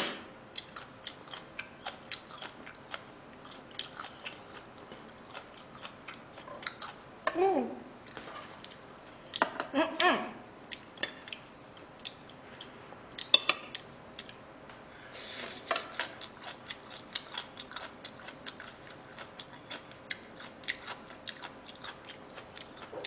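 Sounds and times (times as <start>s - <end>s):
chewing with mouth clicks: 0.5s - 7.0s, 10.5s - 14.4s, 15.9s - 23.0s.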